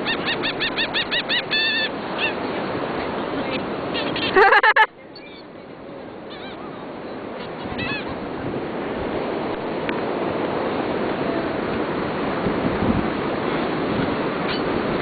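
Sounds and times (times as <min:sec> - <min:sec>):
gulls calling: 0:00.0 - 0:08.4, 0:13.4 - 0:15.0
surf washing: 0:00.0 - 0:15.0.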